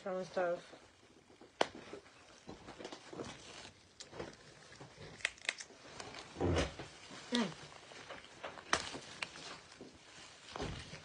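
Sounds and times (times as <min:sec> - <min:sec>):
crab shells cracking: 0:03.9 - 0:06.3.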